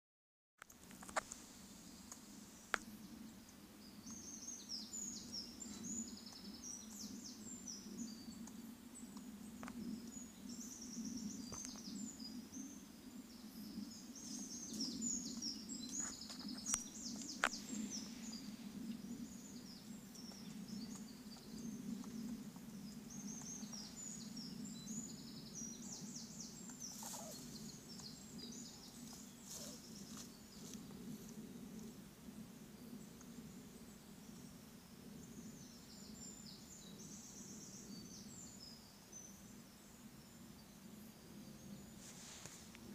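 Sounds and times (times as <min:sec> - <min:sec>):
steady low hum: 0:01.2 - 0:42.9
squirrel squeaky chirps: 0:26.9 - 0:27.4.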